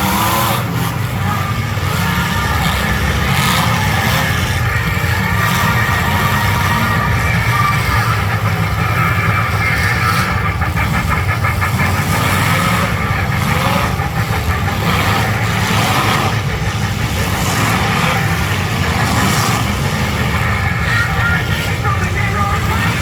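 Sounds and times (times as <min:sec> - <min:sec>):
car engines rumbling: 0:00.0 - 0:23.0.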